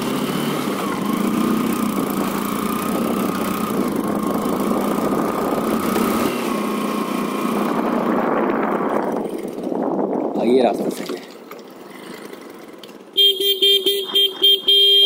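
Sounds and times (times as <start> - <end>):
motorcycle engine running: 0.0 - 10.1
wind and road noise: 0.0 - 15.0.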